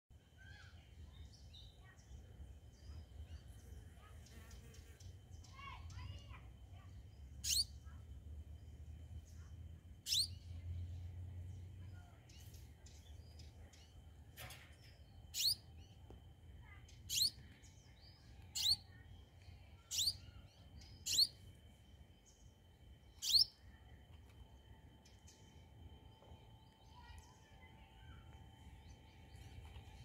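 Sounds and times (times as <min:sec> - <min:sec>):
bird chirping: 0:07.1 - 0:08.0, 0:08.6 - 0:14.1, 0:14.8 - 0:21.4, 0:22.2 - 0:23.7.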